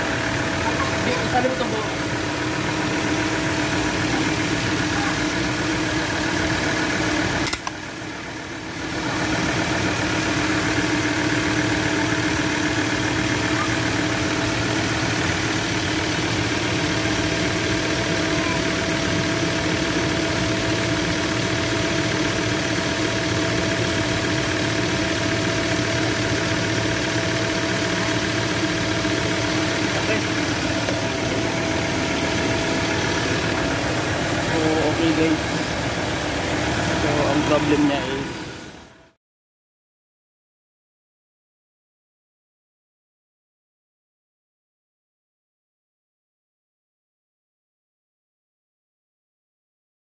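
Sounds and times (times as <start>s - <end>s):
diesel engine idling: 0.0s - 39.1s
engine whine: 0.0s - 39.1s.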